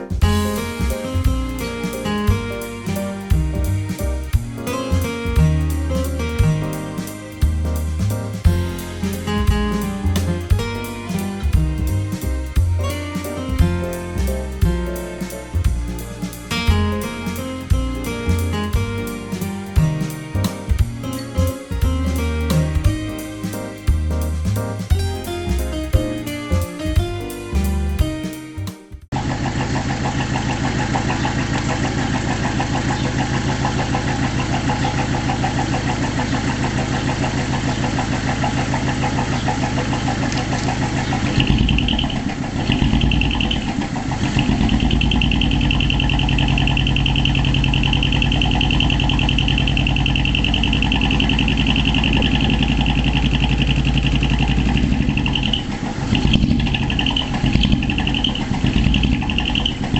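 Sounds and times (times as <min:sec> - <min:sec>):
diesel engine exhaust: 0:29.0 - 0:59.9.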